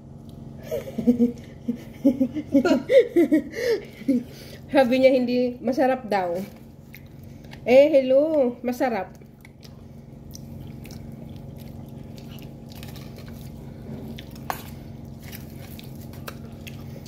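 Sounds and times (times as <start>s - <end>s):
person chewing food: 0.0s - 0.6s, 6.6s - 7.6s, 9.1s - 17.0s
low hum: 0.0s - 17.0s.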